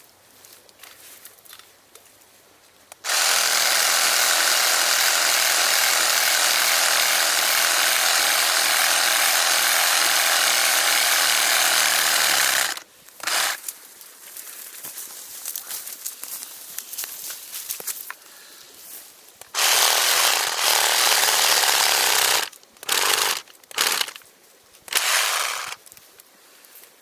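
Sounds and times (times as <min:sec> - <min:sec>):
reciprocating saw cutting wood: 0:03.0 - 0:13.6, 0:19.5 - 0:24.2, 0:24.9 - 0:25.8.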